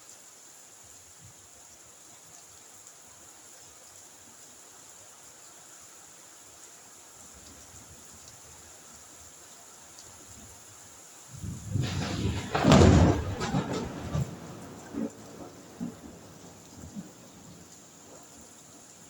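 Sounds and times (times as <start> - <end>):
rain hissing: 7.2 - 19.0.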